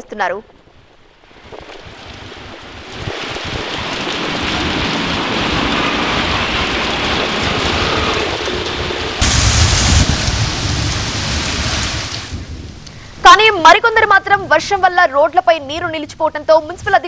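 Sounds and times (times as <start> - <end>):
heavy rain hissing: 2.7 - 13.8.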